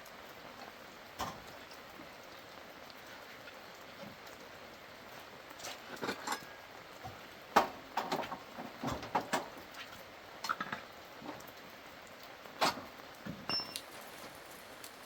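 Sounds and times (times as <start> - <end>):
light knocks and clinks: 13.4 - 14.4.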